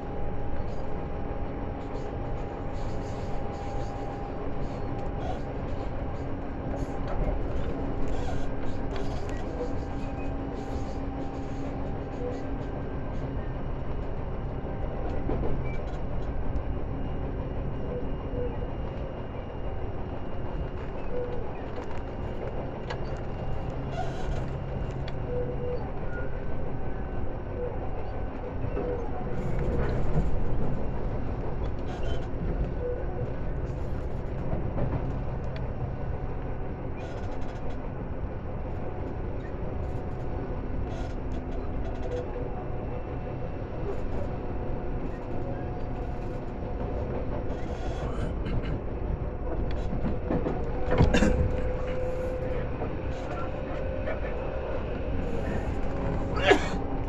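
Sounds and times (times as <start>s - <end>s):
wheels rumbling on rail: 0.0s - 57.0s
rail-joint clicks: 1.8s - 14.2s, 20.5s - 25.8s, 28.3s - 37.9s, 45.0s - 57.0s
constant hum: 27.9s - 57.0s.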